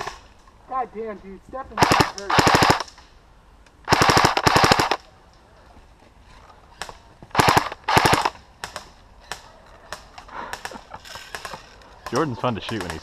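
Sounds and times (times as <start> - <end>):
airsoft rifle firing bursts: 1.8 - 2.9, 3.9 - 5.0, 7.3 - 9.4.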